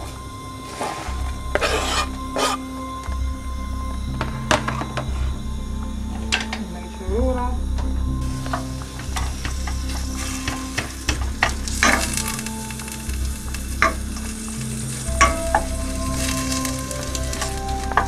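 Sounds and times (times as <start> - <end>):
wooden spoon scraping a pan: 0.7 - 2.6
onions sizzling in a pan: 8.3 - 18.0.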